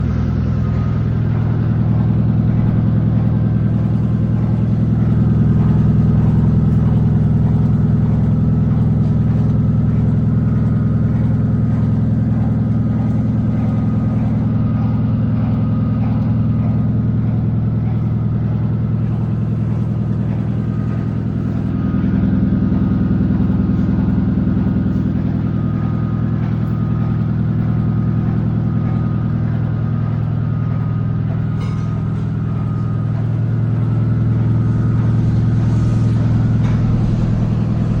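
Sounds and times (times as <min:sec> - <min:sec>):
washing machine motor humming: 0:00.0 - 0:38.0.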